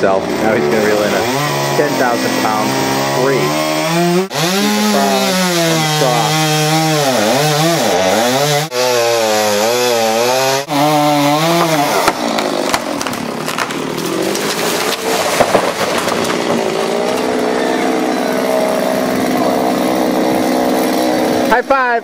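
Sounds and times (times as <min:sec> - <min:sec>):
chainsaw cutting wood: 0:00.0 - 0:21.8
wood cracks and knocks: 0:11.4 - 0:17.5.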